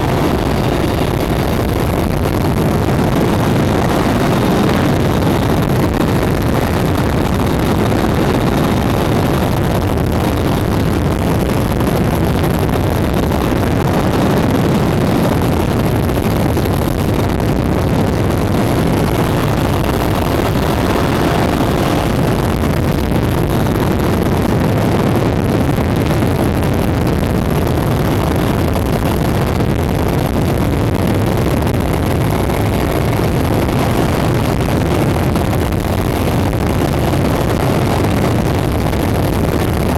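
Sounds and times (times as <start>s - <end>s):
helicopter turbine and rotor drone: 2.7s - 9.7s, 18.4s - 22.5s.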